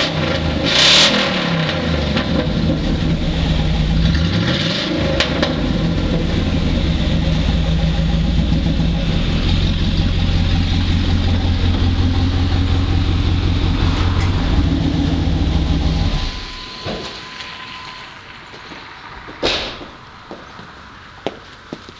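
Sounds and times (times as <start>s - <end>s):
loud open exhaust engine idling: 1.3s - 20.2s.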